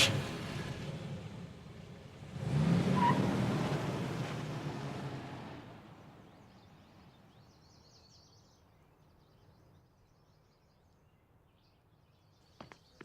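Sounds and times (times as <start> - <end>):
faint birds chirping: 5.8 - 13.0.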